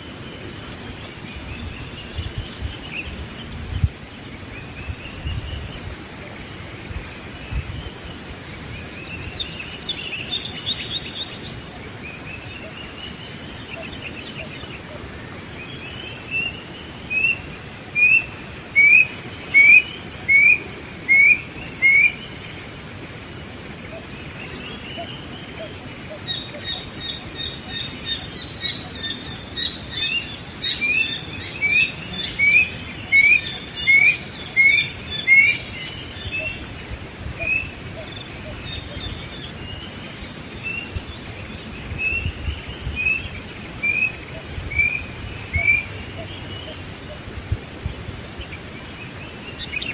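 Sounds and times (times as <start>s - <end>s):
faint insect drone: 0.0s - 49.9s.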